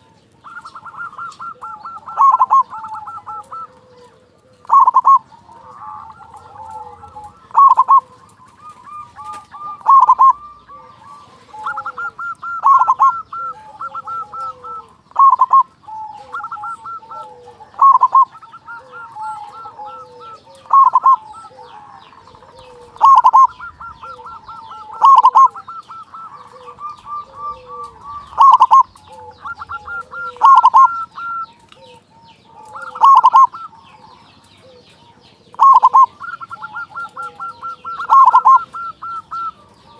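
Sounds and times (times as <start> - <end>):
dove trills: 0.0 - 39.9
doves cooing: 0.0 - 39.9.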